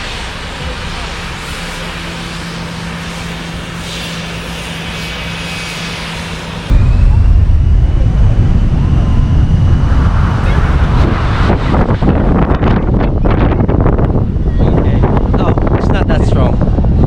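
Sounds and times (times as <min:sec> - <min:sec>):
jet engines humming: 0:00.0 - 0:14.5
jet blast wind buffeting microphone: 0:00.0 - 0:17.0.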